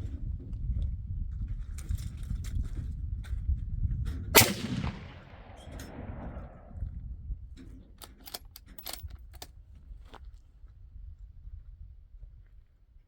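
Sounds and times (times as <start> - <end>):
gunshot: 4.4 - 6.7
low rumble: 4.4 - 7.2.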